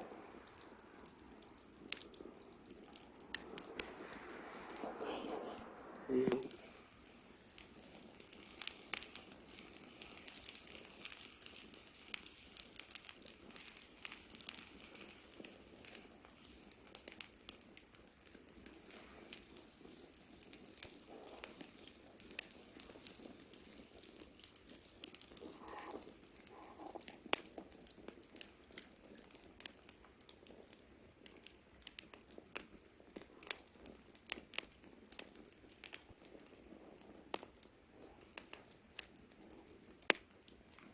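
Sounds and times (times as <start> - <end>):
faint hiss: 0.0 - 30.0
campfire crackling: 0.0 - 40.9.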